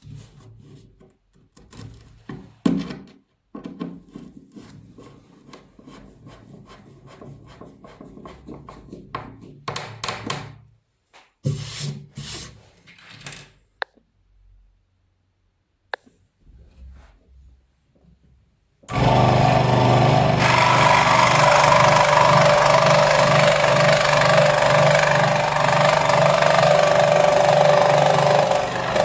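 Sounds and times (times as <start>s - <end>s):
wood rasping against abrasive: 18.9s - 29.0s.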